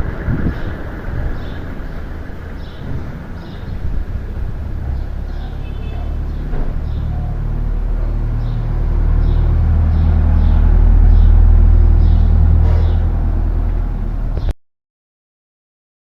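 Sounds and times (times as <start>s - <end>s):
rumble of moving air: 0.0s - 5.6s, 6.2s - 14.5s
electric fan motor humming: 7.4s - 14.3s.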